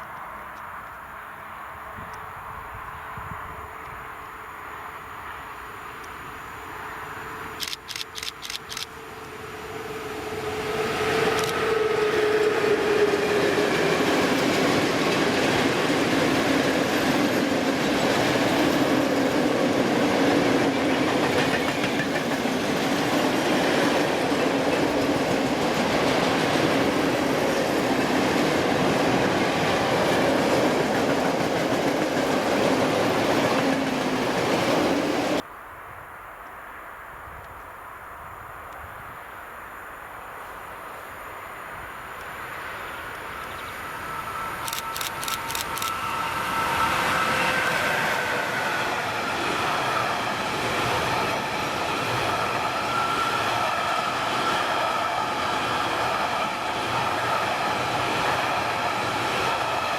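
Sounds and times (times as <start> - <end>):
train passing: 0.0 - 35.5, 37.9 - 59.9
quick clicks: 7.6 - 8.9, 11.3 - 11.6, 44.6 - 46.0
wheels clacking on rail joints: 12.3 - 34.6.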